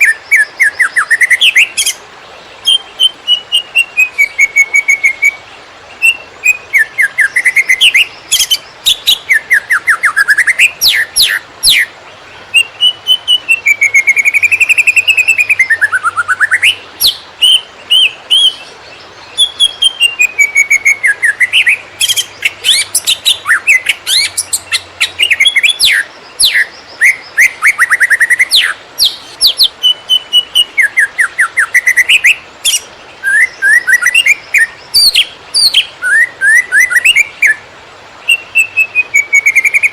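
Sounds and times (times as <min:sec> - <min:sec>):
bird singing rapid chirps and whistles: 0:00.0 - 0:37.6, 0:38.2 - 0:39.9.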